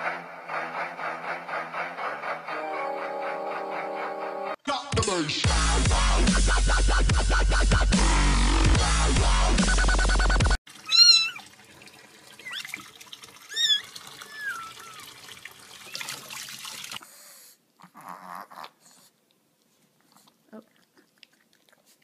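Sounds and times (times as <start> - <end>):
cat meowing: 10.8 - 11.4, 13.5 - 15.1.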